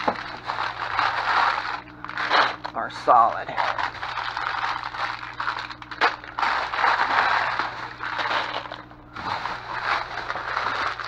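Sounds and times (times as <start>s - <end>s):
plastic wrappers crinkling: 0.0s - 11.0s
steady low hum: 0.0s - 11.0s.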